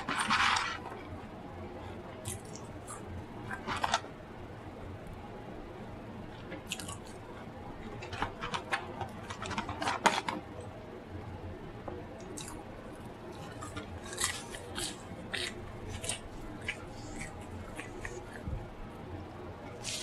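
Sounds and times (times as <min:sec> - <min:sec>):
person chewing food: 0:02.2 - 0:04.0, 0:06.4 - 0:07.2, 0:12.2 - 0:12.6, 0:13.4 - 0:18.5.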